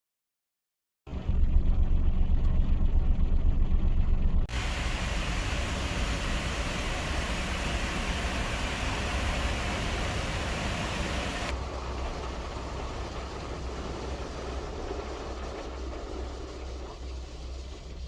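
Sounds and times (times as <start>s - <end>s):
strong wind rushing: 4.5s - 11.5s.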